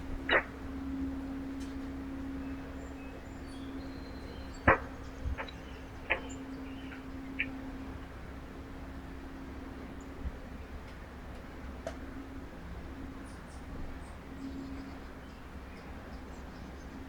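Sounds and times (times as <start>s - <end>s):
steady low hum: 0.0s - 17.0s
small birds chirping: 2.3s - 8.1s.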